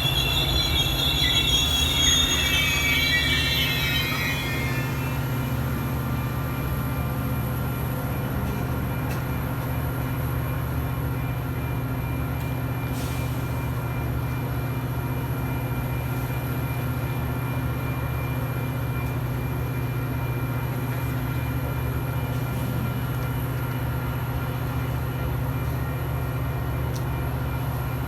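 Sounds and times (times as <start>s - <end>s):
diesel locomotive rumbling: 0.0s - 28.0s.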